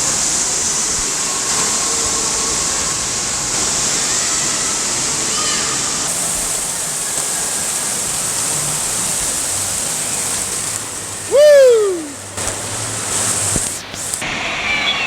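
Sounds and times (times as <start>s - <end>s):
water rushing: 0.1s - 15.0s
person shouting: 11.3s - 12.2s.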